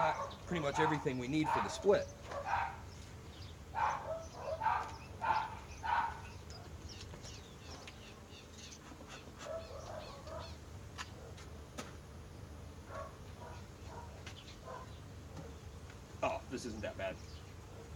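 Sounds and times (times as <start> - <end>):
dog barking: 0.0 - 2.9, 3.8 - 6.7, 9.4 - 11.5, 12.9 - 15.6, 17.7 - 17.9.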